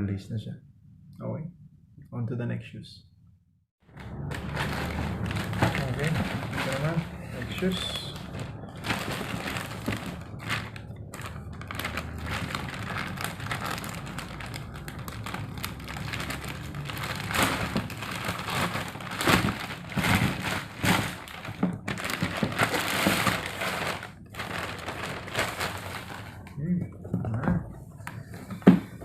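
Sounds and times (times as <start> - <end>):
packaging crinkling and rustling: 3.9 - 26.6.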